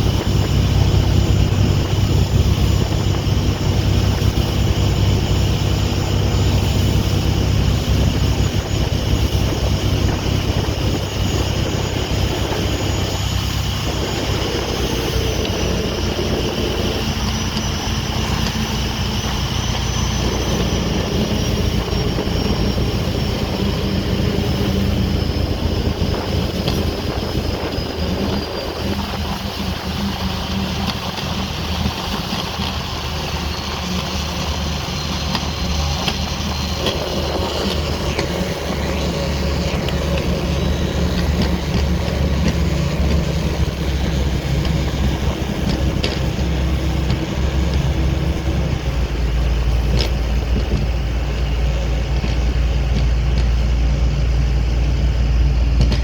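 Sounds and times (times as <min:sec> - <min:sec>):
motorboat engine droning: 0:00.0 - 0:56.0.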